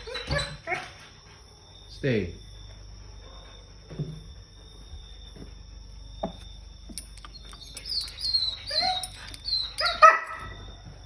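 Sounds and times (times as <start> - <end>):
dog whining: 0.0 - 1.0, 7.4 - 10.6
dog yelping: 7.8 - 10.6.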